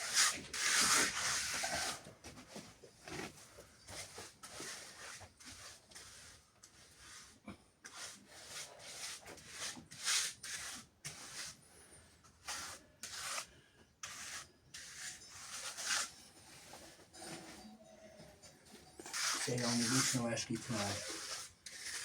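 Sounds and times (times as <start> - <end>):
trowel scraping wet cement: 0.0 - 2.0, 4.4 - 11.6, 12.4 - 17.6, 19.0 - 22.0.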